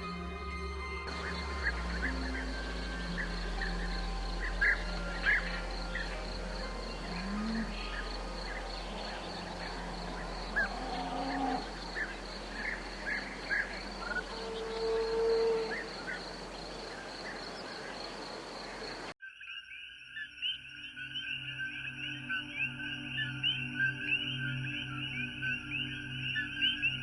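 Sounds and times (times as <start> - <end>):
high-pitched insect chorus: 0.0 - 19.1
low drawn-out animal calls: 1.4 - 17.8.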